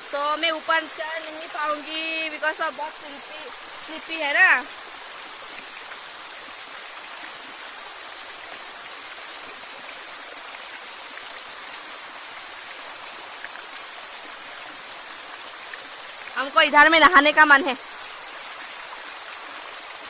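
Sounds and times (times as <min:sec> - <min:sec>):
small waterfall splashing: 0:00.0 - 0:20.0.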